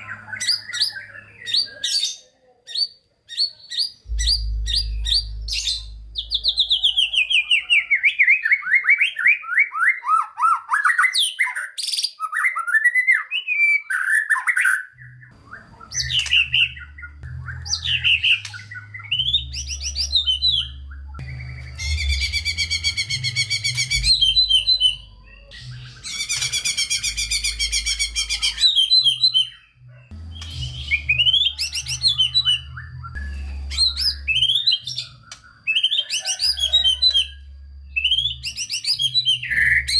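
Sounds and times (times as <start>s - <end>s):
songbird singing: 0.0s - 2.0s, 4.0s - 9.8s, 15.0s - 39.9s
low hum: 4.1s - 8.0s, 15.1s - 35.6s
rapid rattling trill: 15.3s - 29.4s.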